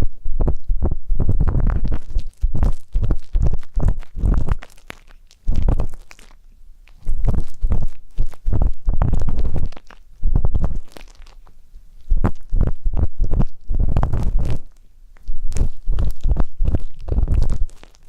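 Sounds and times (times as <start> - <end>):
ear tip scraping microphone: 0.0 - 4.7, 5.4 - 6.1, 7.0 - 11.1, 12.0 - 18.0.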